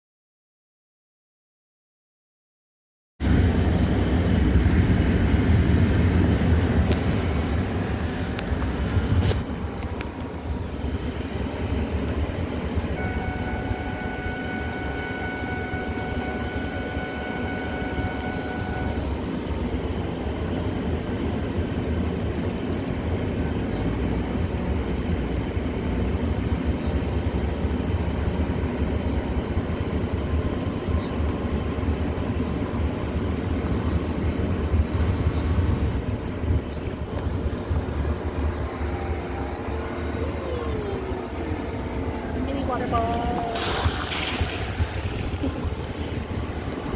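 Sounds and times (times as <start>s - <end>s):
steady high tone: 12.9s - 19.4s, 38.1s - 44.0s
car driving over rough trail: 41.0s - 46.9s.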